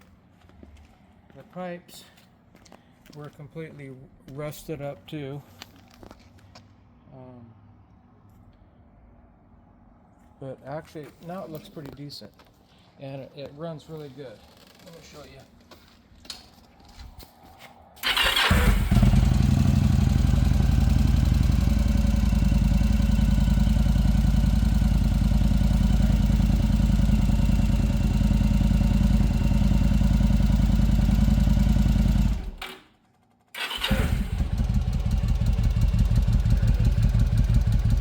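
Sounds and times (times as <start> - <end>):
motorcycle engine idling: 18.0 - 32.6, 33.6 - 38.0
motorcycle engine starting: 18.0 - 38.0.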